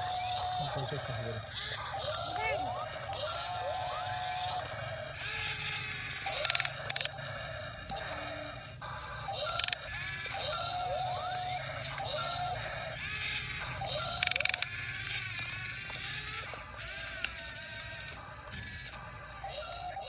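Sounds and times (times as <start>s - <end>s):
small electric motors whining: 0.0s - 20.0s
sharp clicks: 5.5s - 8.4s, 9.3s - 10.4s, 11.8s - 12.7s, 13.4s - 19.1s.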